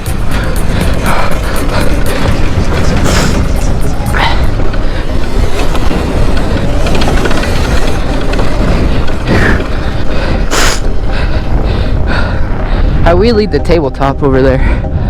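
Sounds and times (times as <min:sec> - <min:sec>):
chain and chassis rattling: 0:00.0 - 0:12.0
wind buffeting microphone: 0:00.0 - 0:15.0.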